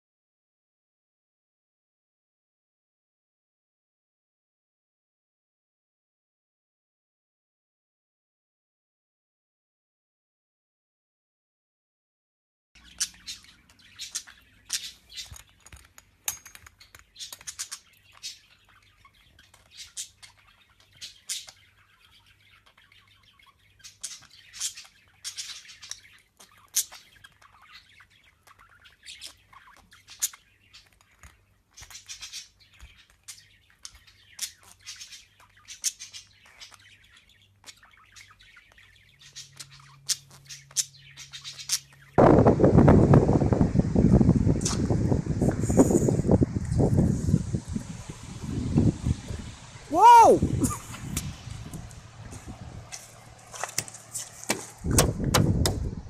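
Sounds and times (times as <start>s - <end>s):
pet birds chirping and squawking: 12.8s - 42.2s.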